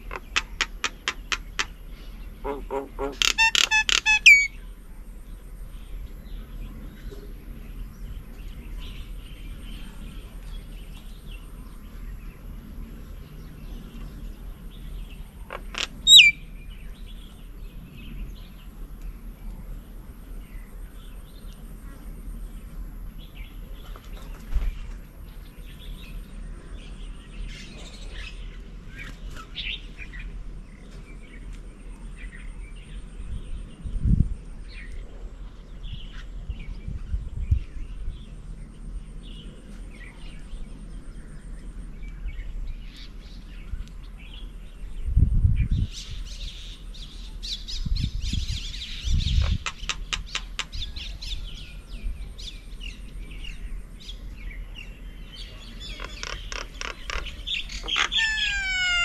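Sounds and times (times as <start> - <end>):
bird call sweeping down: 0.0 - 1.7, 2.4 - 4.6, 15.5 - 16.4, 56.0 - 59.0
birds chirping: 0.0 - 21.7, 45.7 - 59.0.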